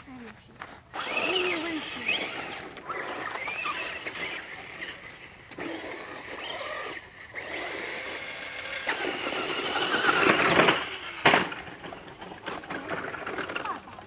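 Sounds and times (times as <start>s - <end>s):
electric rc car motor whining: 0.9s - 13.8s.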